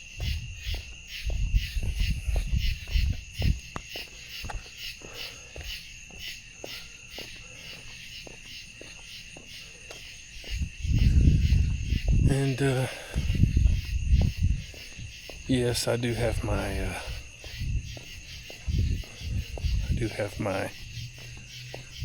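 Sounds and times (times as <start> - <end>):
footsteps: 0.0 - 22.0
night insects trilling: 0.0 - 22.0
low rumbles: 10.5 - 22.0.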